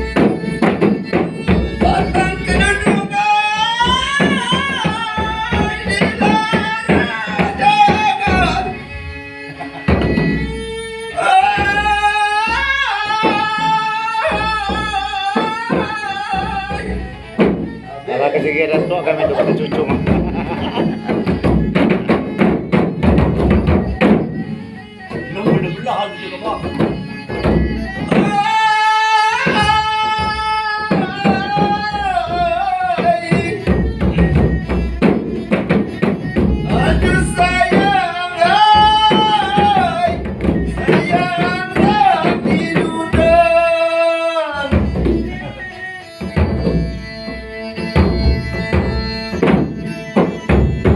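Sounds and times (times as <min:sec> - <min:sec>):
drum strokes: 0:00.0 - 0:43.9, 0:44.6 - 0:50.9
person singing long notes: 0:01.6 - 0:09.8, 0:11.1 - 0:21.4, 0:26.2 - 0:35.0, 0:36.4 - 0:46.1.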